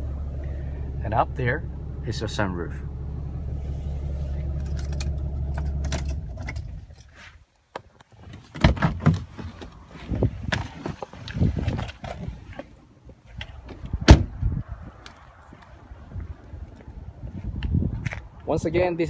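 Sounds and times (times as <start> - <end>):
diesel engine idling: 0.0 - 7.0.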